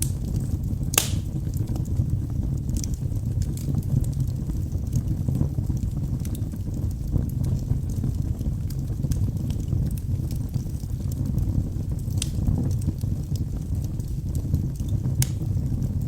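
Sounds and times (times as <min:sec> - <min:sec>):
fireplace logs crackling: 0:00.0 - 0:16.0.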